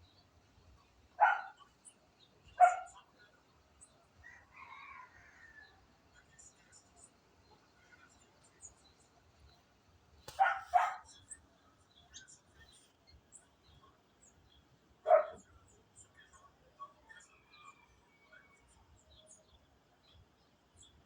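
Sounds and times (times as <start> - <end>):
dog barking: 1.2 - 1.7, 2.6 - 3.1, 10.3 - 11.2, 15.0 - 15.5.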